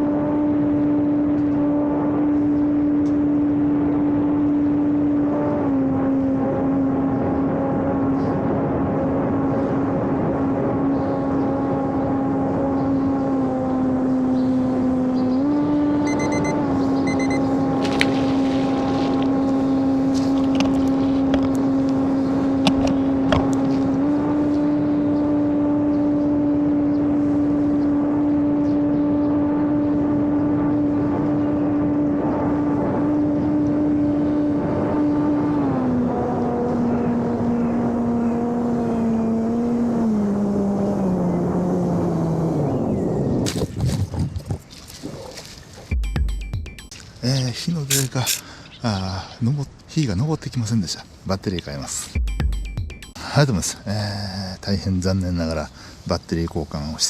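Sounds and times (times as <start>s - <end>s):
electric motor and propeller whine: 0.0s - 43.4s.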